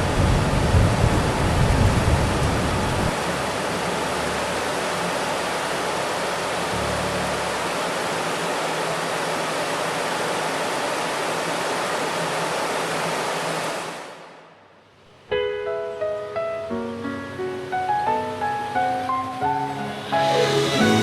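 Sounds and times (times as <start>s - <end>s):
rushing water: 0.0s - 14.4s
struck music notes: 15.5s - 21.0s.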